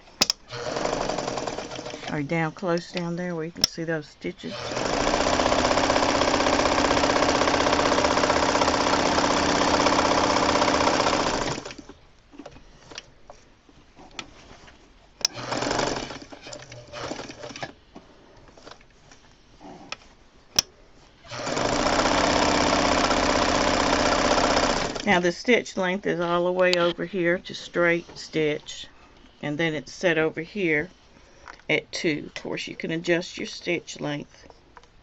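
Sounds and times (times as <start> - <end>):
sharp clicks: 0.2 - 0.4
sewing machine stitching: 0.2 - 2.2, 4.4 - 12.0, 15.3 - 17.8, 21.3 - 25.2.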